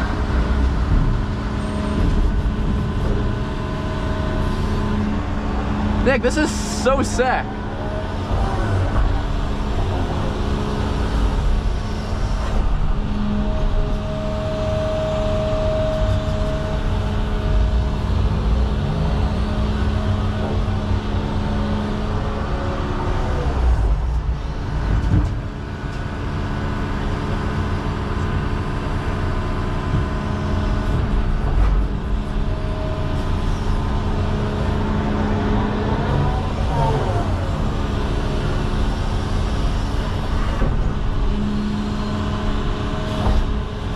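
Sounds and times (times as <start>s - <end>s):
excavator diesel engine running: 0.0s - 43.9s
high whine: 1.4s - 24.7s.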